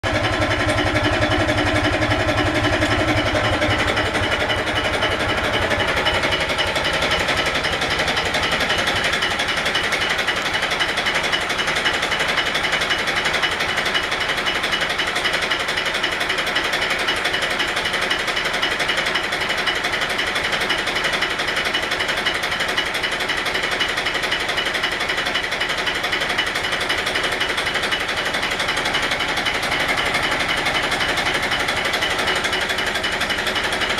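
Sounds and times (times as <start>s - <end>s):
boat engine running: 0.0s - 21.2s, 25.1s - 33.9s.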